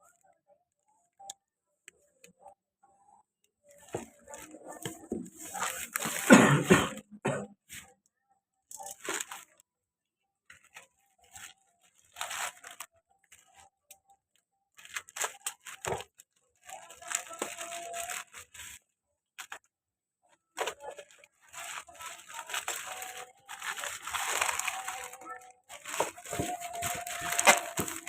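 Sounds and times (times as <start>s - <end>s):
packaging rustling and tearing: 3.8s - 6.9s, 8.8s - 9.6s, 10.5s - 13.7s, 14.7s - 19.7s, 20.6s - 28.0s.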